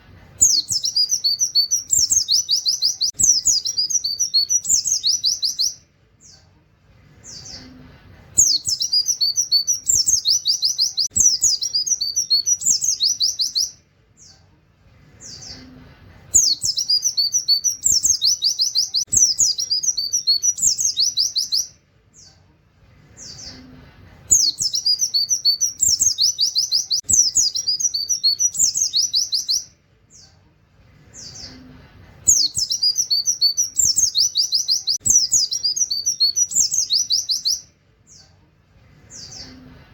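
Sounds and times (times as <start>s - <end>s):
bird singing fast high song: 0.4s - 6.4s, 8.4s - 14.4s, 16.3s - 22.4s, 24.3s - 30.3s, 32.3s - 38.3s.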